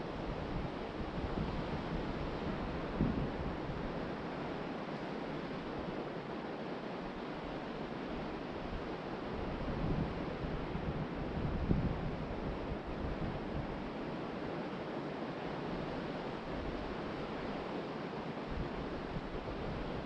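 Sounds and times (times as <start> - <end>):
wind on microphone: 0.0 - 4.2, 8.6 - 14.0.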